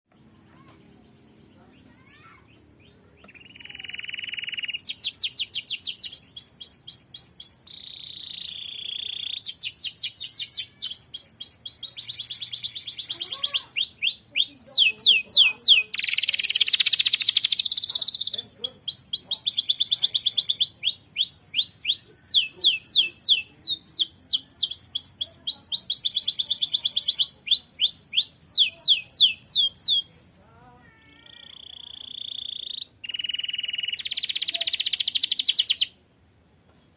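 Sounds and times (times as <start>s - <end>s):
canary singing trills: 0.1s - 30.1s, 31.1s - 36.0s.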